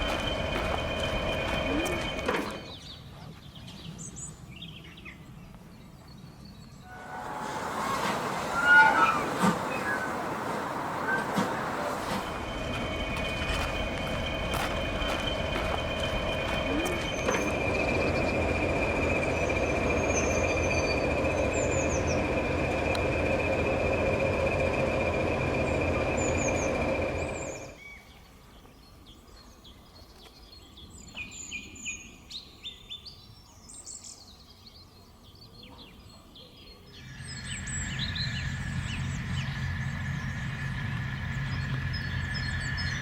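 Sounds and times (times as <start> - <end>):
rumbling noise with high whine: 0.0 - 2.8, 6.9 - 27.8, 37.0 - 43.0
mechanical hum: 6.9 - 27.9, 37.0 - 43.0.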